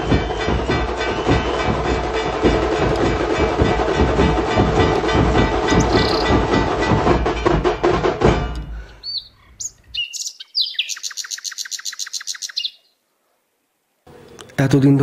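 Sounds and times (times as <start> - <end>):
bird rapid repeated notes: 0.0 - 7.5, 9.0 - 12.8
music with percussive beat: 0.0 - 8.9
bird chirping: 5.7 - 6.5, 8.6 - 13.0.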